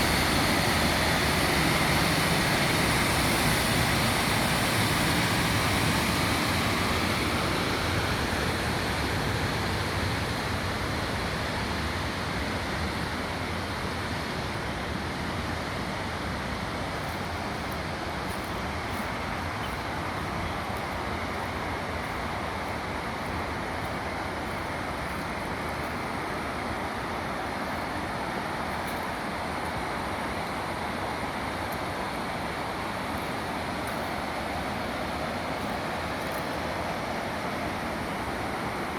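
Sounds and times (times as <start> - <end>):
waterfall rushing: 16.8 - 38.9.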